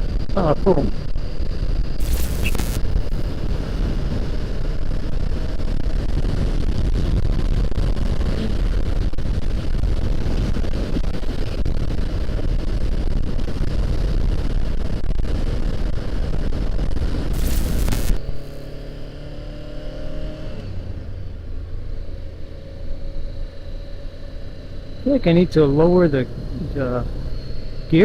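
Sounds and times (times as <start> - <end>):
wind rushing on microphone: 0.0 - 18.7.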